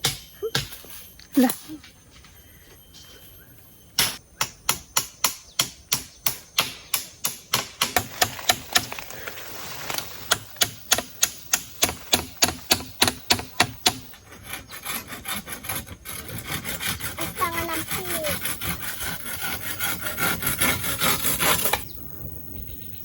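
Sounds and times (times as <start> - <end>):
blade strokes on wood: 10.2 - 21.9.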